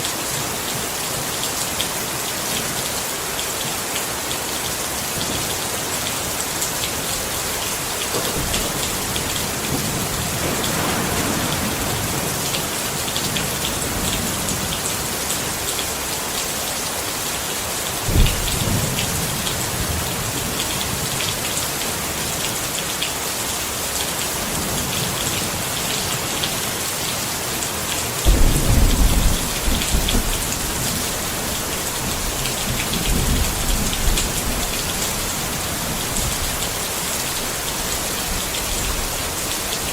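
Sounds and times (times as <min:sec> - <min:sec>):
rain on a tent: 0:00.0 - 0:39.9
thunder: 0:08.2 - 0:14.7, 0:18.1 - 0:20.5, 0:28.3 - 0:34.9.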